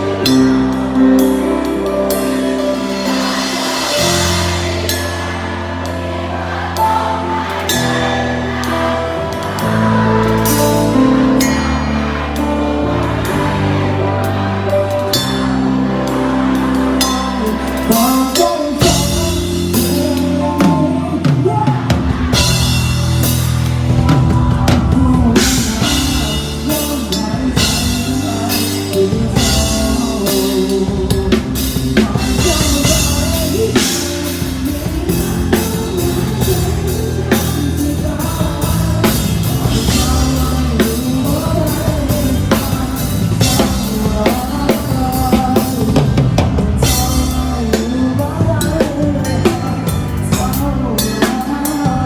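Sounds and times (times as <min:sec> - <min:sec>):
rock band playing: 0:00.0 - 0:52.0.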